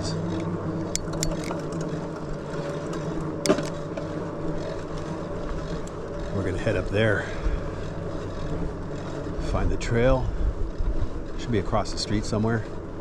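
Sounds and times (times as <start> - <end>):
sharp clicks and rattles: 0.0 - 4.2
electric bike hum and rolling: 0.0 - 13.0.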